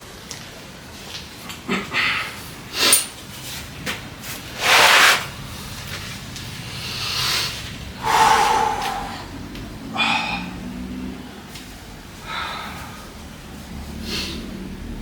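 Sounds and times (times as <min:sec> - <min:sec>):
person exhaling forcefully: 0:07.1 - 0:10.7.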